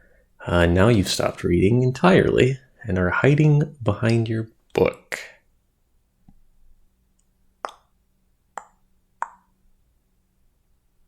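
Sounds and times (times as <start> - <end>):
sharp mouth pops: 7.6 - 8.0, 8.6 - 9.5.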